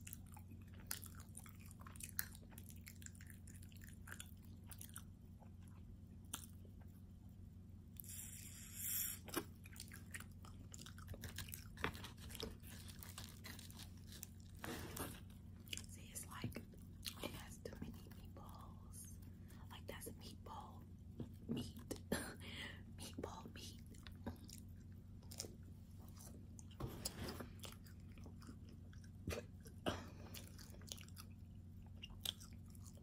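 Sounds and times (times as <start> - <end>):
person chewing: 0.0 - 6.9, 8.0 - 17.5, 23.9 - 33.0.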